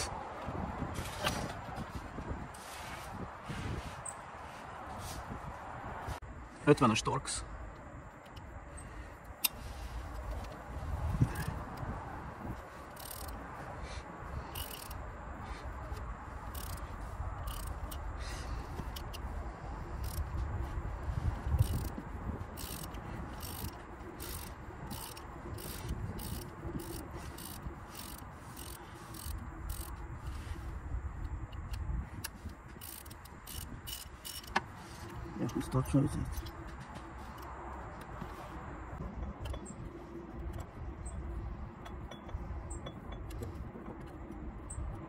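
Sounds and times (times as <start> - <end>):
hand tools clicking: 12.9 - 13.4, 14.5 - 15.0, 15.9 - 18.2, 21.5 - 30.0, 31.5 - 35.6.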